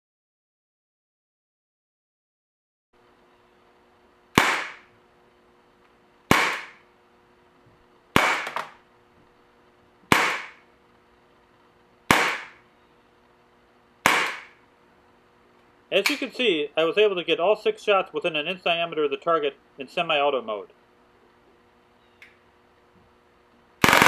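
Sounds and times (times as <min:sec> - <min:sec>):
bb pistol shots: 0:04.4 - 0:04.9, 0:06.3 - 0:06.8, 0:08.2 - 0:08.8, 0:10.1 - 0:10.6, 0:12.1 - 0:12.6, 0:14.0 - 0:14.6, 0:23.8 - 0:24.0.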